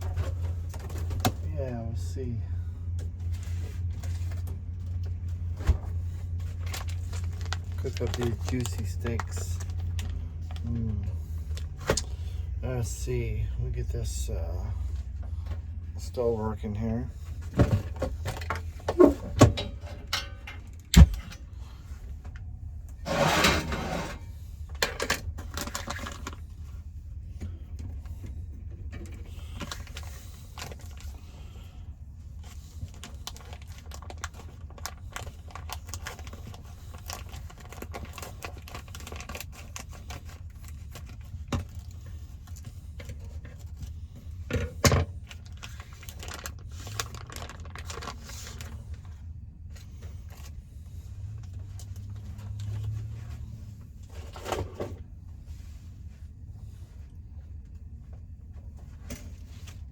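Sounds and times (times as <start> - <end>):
metal clatter: 17.7 - 21.5
metal clicks and rattles of stove: 19.4 - 21.4.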